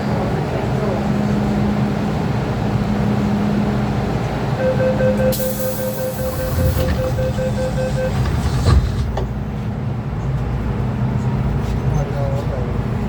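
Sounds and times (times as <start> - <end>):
train rumble: 0.0 - 13.0
rapid pulsing electronic beep: 4.6 - 9.0
train doors shutting: 4.6 - 9.7.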